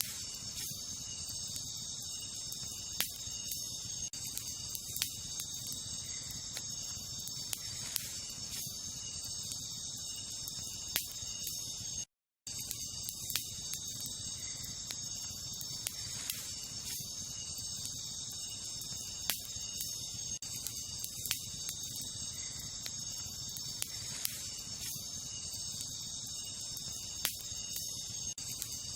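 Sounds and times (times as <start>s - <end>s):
campfire crackling: 0.0s - 28.9s
night insects chorus: 0.0s - 28.9s.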